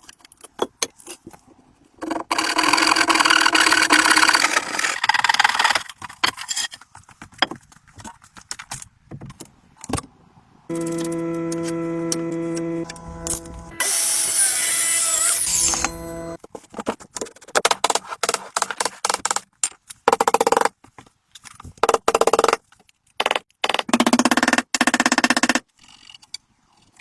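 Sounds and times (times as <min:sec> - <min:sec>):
power drill running: 0:10.7 - 0:16.4.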